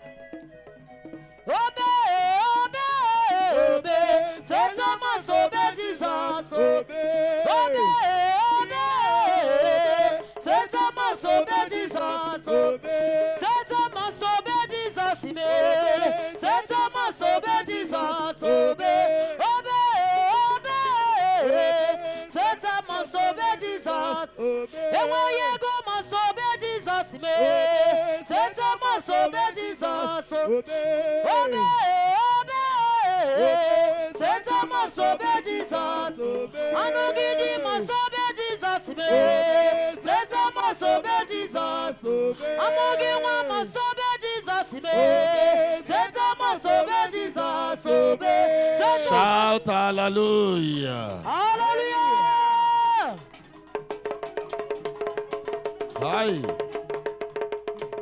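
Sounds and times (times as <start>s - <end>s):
music accompaniment: 0.0s - 2.9s, 52.3s - 58.0s
person singing worship melody: 1.4s - 53.4s, 55.9s - 56.9s.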